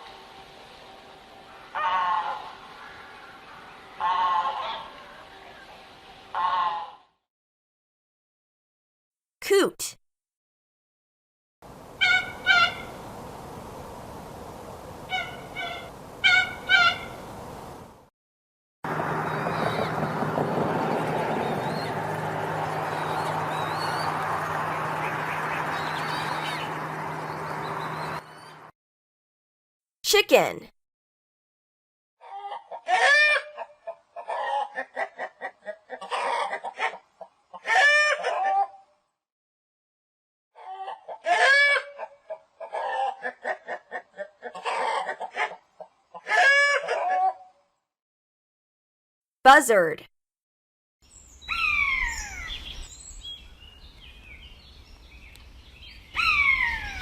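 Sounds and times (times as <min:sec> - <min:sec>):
coots calling: 0:01.7 - 0:05.2, 0:11.9 - 0:13.2, 0:15.0 - 0:17.8, 0:18.9 - 0:28.7, 0:32.2 - 0:38.7, 0:40.6 - 0:47.4, 0:51.4 - 0:52.9, 0:55.9 - 0:57.0
chicken squawking call: 0:06.3 - 0:07.0, 0:12.0 - 0:13.0, 0:15.1 - 0:17.2, 0:32.2 - 0:37.0, 0:37.6 - 0:38.8, 0:40.6 - 0:45.6, 0:46.2 - 0:47.5, 0:56.2 - 0:57.0
bird high chirps: 0:22.9 - 0:24.2, 0:24.8 - 0:28.6, 0:51.1 - 0:57.0
chicken clucking: 0:40.6 - 0:46.8.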